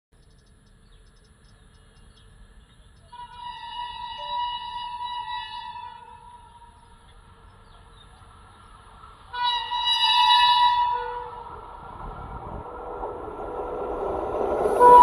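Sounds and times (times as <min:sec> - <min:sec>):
train rumbling: 0:00.2 - 0:15.0
locomotive horn blasts: 0:03.1 - 0:06.9, 0:09.3 - 0:11.5, 0:14.6 - 0:15.0.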